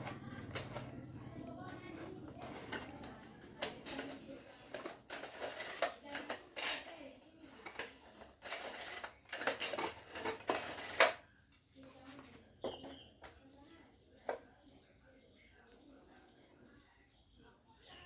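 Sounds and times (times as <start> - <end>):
metal tools clinking and clattering: 2.0 - 11.2.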